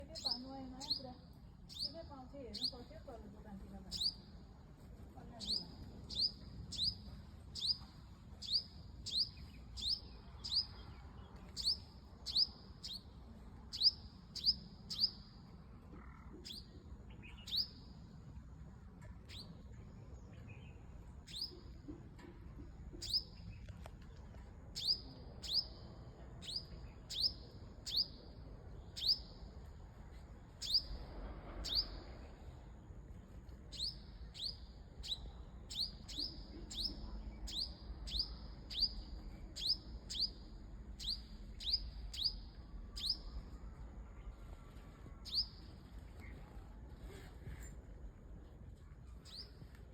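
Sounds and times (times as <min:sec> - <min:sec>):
bird chirping: 0:00.0 - 0:02.9, 0:03.9 - 0:04.3, 0:05.4 - 0:13.1, 0:13.7 - 0:15.4, 0:16.0 - 0:18.0, 0:19.2 - 0:22.3, 0:22.9 - 0:23.8, 0:24.7 - 0:29.5, 0:30.5 - 0:32.2, 0:33.7 - 0:44.3, 0:45.2 - 0:46.4, 0:49.2 - 0:49.7.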